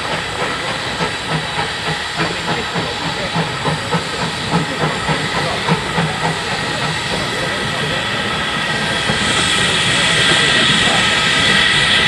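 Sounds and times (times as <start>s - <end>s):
hiss of steam: 0.0s - 12.0s
locomotive exhaust beats: 0.0s - 12.0s.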